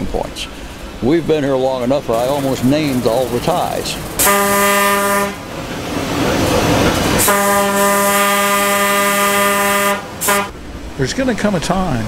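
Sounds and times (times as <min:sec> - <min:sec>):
train running rumble: 0:00.0 - 0:12.0
train horn blasts: 0:04.2 - 0:05.5, 0:07.2 - 0:10.6.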